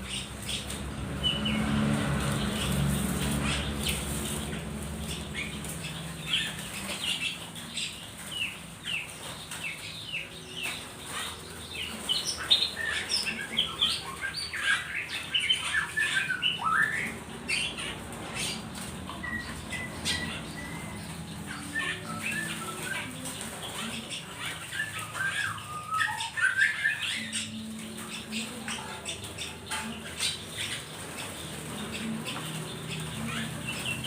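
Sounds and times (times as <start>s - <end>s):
songbirds chirping and squawking: 0.0s - 34.0s.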